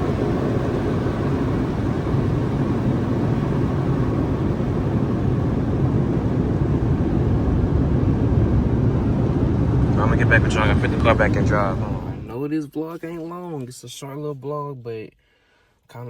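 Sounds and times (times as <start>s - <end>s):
low mechanical rumble: 0.0s - 12.4s.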